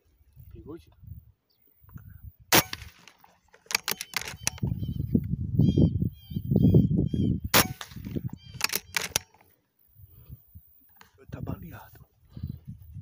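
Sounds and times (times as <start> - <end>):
sharp clicks: 2.6 - 4.8, 7.6 - 9.5
bird chirps: 8.2 - 9.4.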